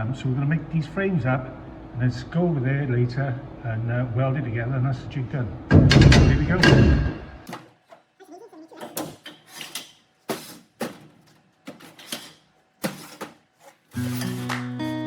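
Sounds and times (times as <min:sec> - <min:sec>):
steel pieces knocking and clanking: 0:05.7 - 0:08.1, 0:08.7 - 0:15.0
acoustic guitar music: 0:12.9 - 0:15.0.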